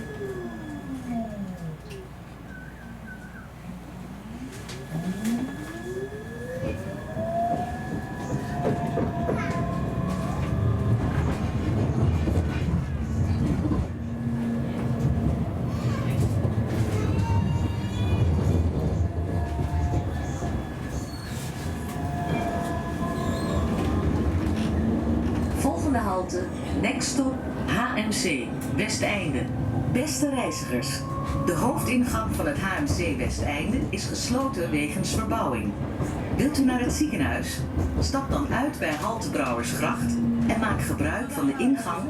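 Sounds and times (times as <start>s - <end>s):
tram motor whine: 0.0s - 42.0s
tram rumbling and clattering: 0.0s - 42.0s
wheel squeal: 19.8s - 24.0s.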